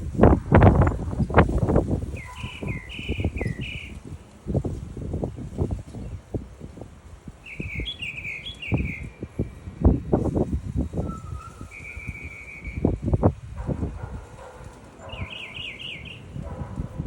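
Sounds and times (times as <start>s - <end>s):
bird trill: 2.1s - 4.0s, 7.4s - 9.2s, 11.0s - 13.0s, 15.0s - 16.4s
small birds chirping: 2.1s - 4.2s, 7.3s - 9.3s, 11.0s - 13.0s, 14.2s - 16.9s.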